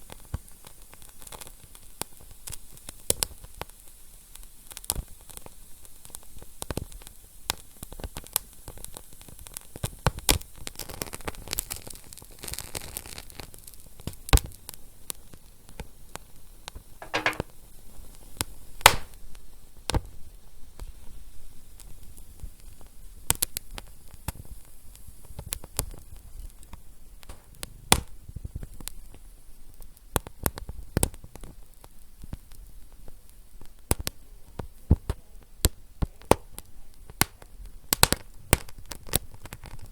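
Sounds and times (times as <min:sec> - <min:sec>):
hiss from burning wood: 0:00.0 - 0:15.5
wood fire crackling: 0:18.8 - 0:19.2.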